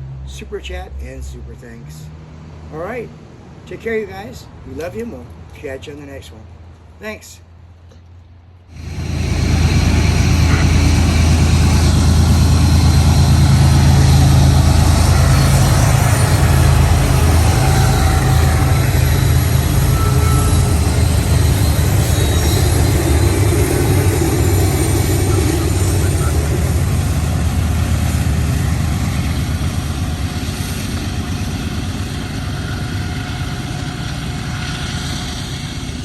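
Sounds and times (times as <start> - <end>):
diesel locomotive engine drone: 0.0 - 36.0
wide rushing noise: 8.7 - 36.0.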